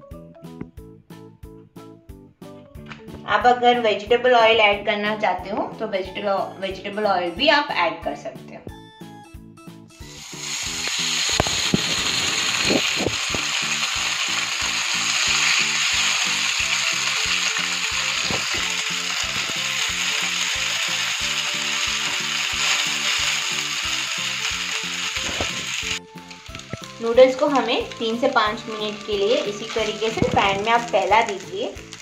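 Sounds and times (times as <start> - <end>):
noodles sizzling in hot oil: 10.0 - 32.0.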